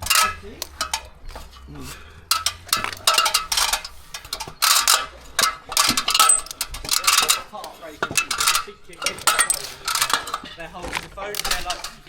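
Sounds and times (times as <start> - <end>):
light metallic clinking: 0.0 - 12.0.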